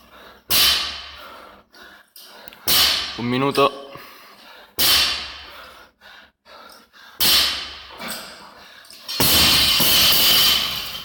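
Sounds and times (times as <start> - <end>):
heavy rough breathing: 0.0 - 3.1, 3.8 - 9.2.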